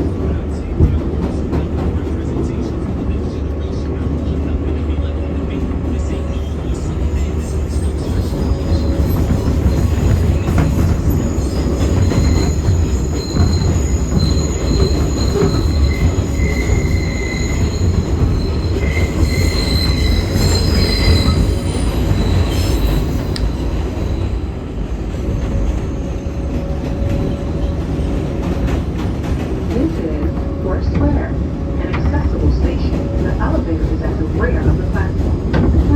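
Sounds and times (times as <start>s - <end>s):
subway train rumble: 0.0s - 35.9s
train wheels squealing: 6.0s - 28.7s.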